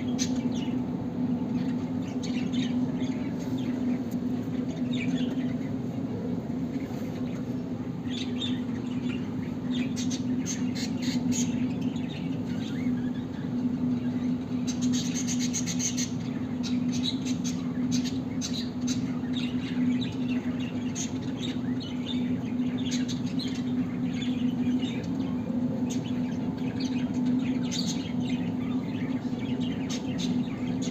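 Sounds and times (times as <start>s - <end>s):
finches chirping: 0.0s - 30.9s
steady low hum: 0.0s - 30.9s.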